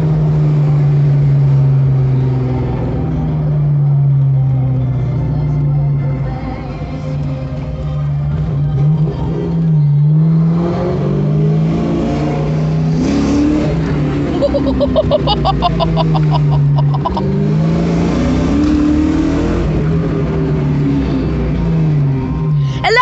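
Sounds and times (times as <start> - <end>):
car engine accelerating through gears: 0.0 - 6.2, 7.0 - 22.7.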